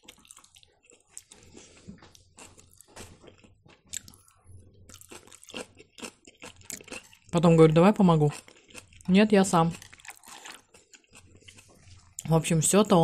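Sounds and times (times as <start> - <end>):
person chewing with mouth smacks: 0.0 - 7.3, 9.7 - 12.3.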